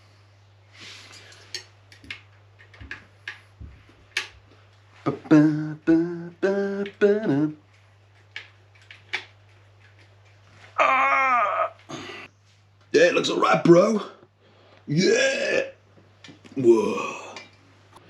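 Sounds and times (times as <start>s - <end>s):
clicks and taps of parts handled: 1.3s - 4.6s
man singing held notes: 5.0s - 7.6s.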